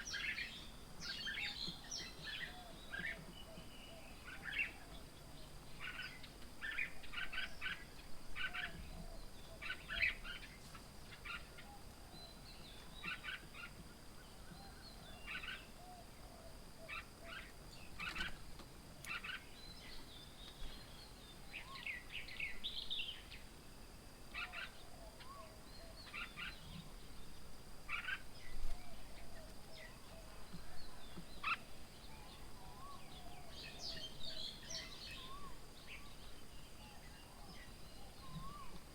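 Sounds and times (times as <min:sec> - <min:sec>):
low outdoor background: 0:00.0 - 0:38.9
birds chirping: 0:27.9 - 0:38.9.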